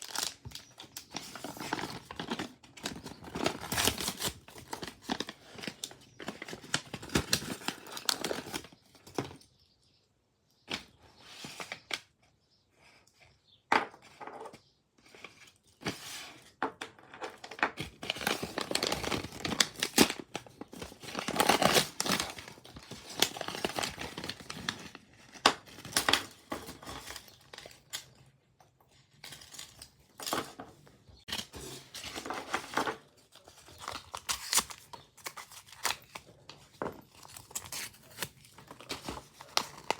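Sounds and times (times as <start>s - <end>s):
paper and plastic crinkling: 0.0s - 9.5s, 17.0s - 28.2s, 29.0s - 39.9s.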